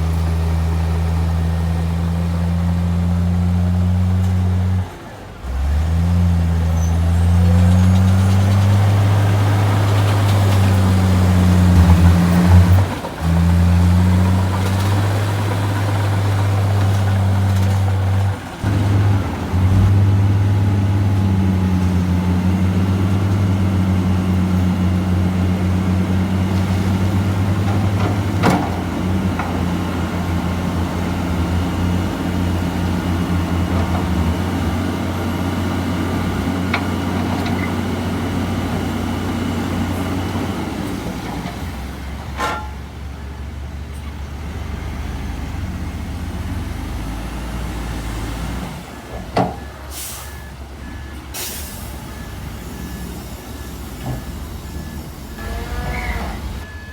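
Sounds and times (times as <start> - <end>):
diesel engine droning: 0.0 - 56.9.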